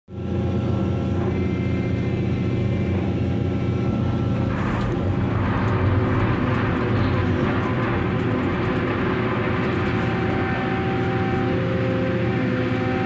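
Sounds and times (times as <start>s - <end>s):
diesel machinery droning: 0.1s - 13.0s
rough rushing noise: 4.2s - 12.3s.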